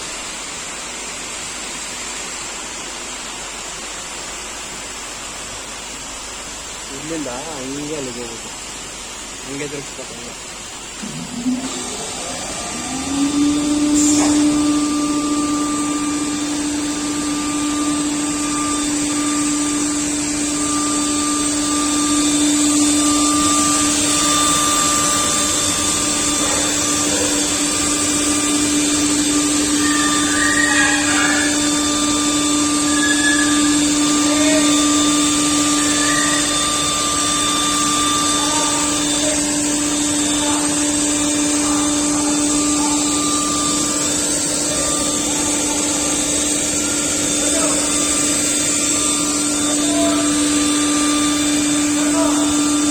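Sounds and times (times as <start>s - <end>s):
router cutting wood: 11.7s - 52.9s.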